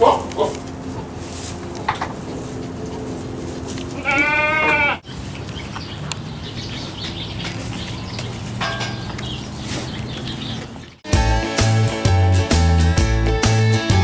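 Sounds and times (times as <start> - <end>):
goat bleating: 0.0 - 5.1.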